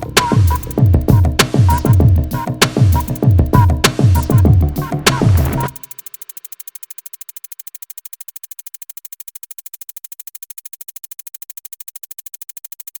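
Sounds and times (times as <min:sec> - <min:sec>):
rapid electronic pulsing: 0:00.0 - 0:08.4.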